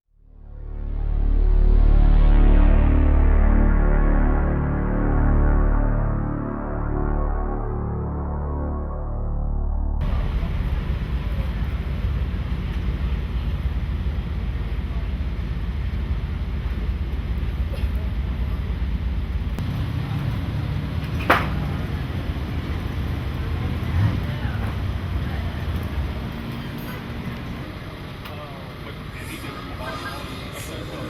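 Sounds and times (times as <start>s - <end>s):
race engine idling: 10.0s - 31.0s
sharp crack: 21.0s - 22.1s.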